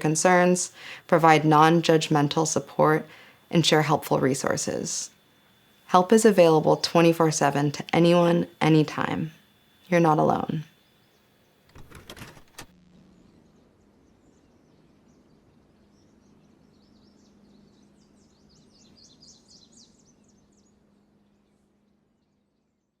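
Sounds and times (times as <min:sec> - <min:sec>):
background hiss: 0:00.0 - 0:13.1
low steady hum: 0:00.0 - 0:22.9
small birds chirping: 0:13.2 - 0:21.6.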